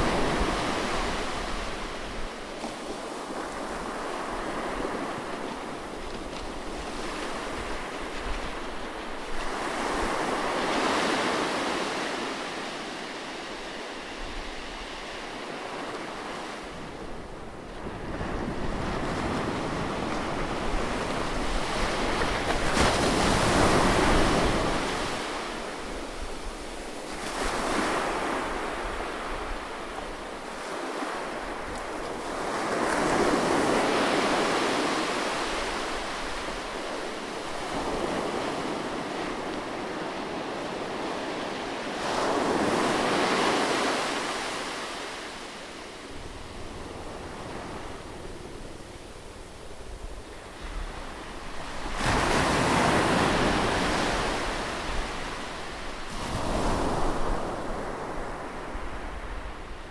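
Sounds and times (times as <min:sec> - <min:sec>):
ocean waves breaking over rocks: 0:00.0 - 0:59.9.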